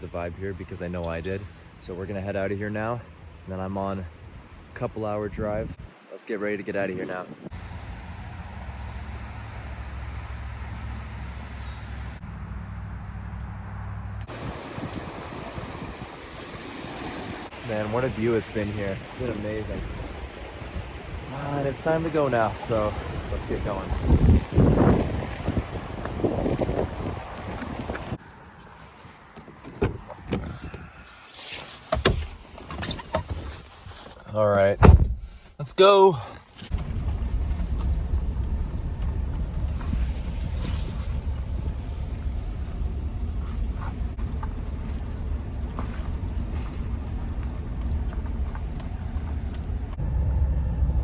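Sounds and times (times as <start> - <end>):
vehicle engine running: 7.6 - 14.6, 36.7 - 51.0
wind buffeting microphone: 14.2 - 28.2, 36.7 - 51.0
knocks and thumps in car: 34.8 - 35.3.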